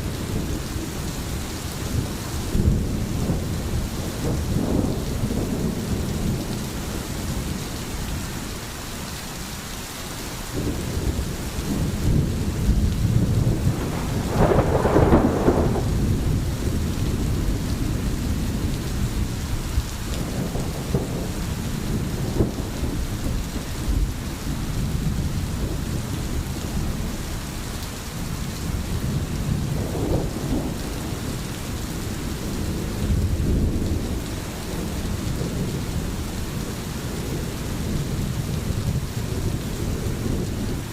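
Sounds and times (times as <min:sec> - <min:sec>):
low rolling thunder: 0:00.0 - 0:08.6, 0:10.5 - 0:40.9
steady rain: 0:00.0 - 0:40.9.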